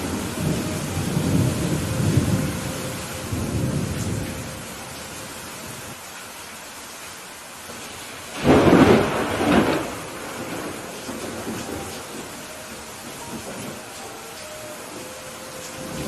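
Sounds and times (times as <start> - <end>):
steady rain: 0.0 - 16.0
thunder: 8.3 - 14.0.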